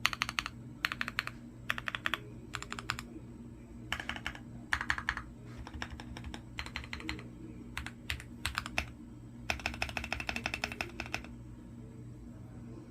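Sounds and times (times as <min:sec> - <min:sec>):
mechanical keyboard typing: 0:00.0 - 0:03.1, 0:03.9 - 0:07.2, 0:07.8 - 0:08.9, 0:09.5 - 0:11.3.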